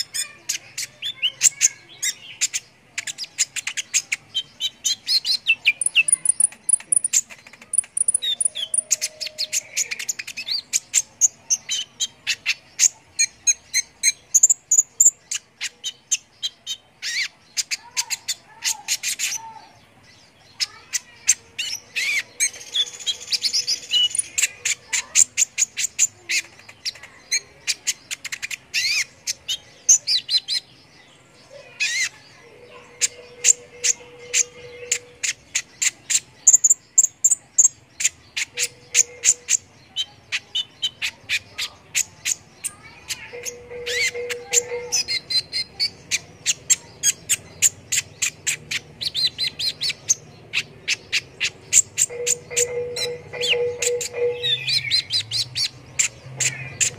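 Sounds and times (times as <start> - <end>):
songbirds chirping and trilling: 0.0 - 56.9.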